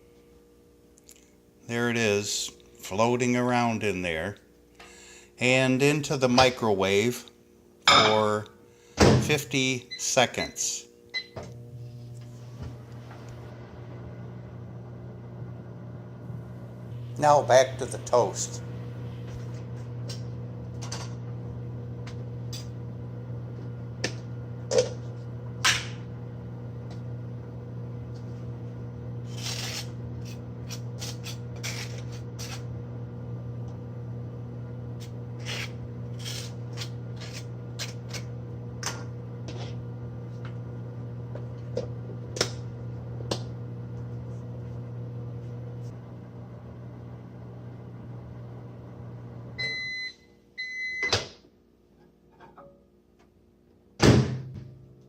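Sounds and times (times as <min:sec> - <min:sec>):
microwave oven humming: 0:07.9 - 0:51.8.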